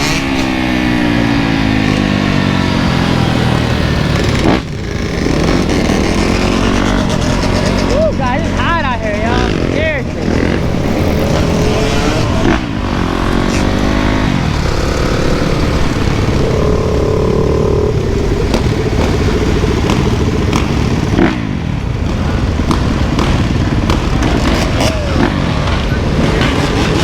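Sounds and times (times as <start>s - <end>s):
dirt bike engines revving: 0.0s - 27.0s
heavy low rumble: 7.8s - 24.2s.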